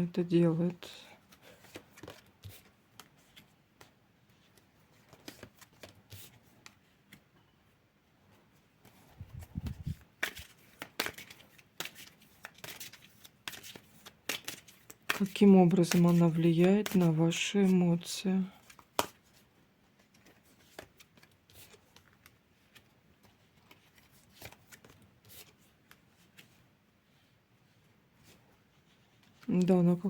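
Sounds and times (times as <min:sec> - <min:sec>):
cards rustling and shuffling: 0:00.7 - 0:07.3, 0:08.5 - 0:30.0.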